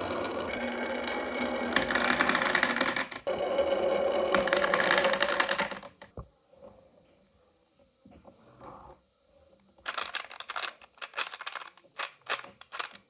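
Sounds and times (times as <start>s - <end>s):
marble run rattling clatter: 0.0s - 3.3s, 3.9s - 6.1s, 9.8s - 13.0s.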